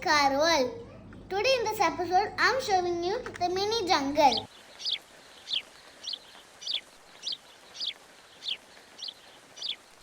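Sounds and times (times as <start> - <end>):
small bird chirping: 2.8 - 10.0.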